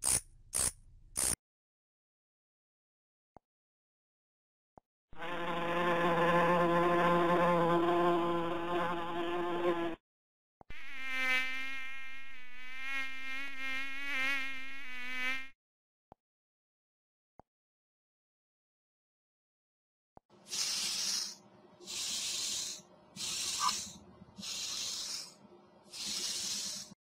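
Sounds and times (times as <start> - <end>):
low steady insect buzz: 10.7 - 15.5, 20.6 - 27.0
high wavering insect hum: 20.5 - 26.9.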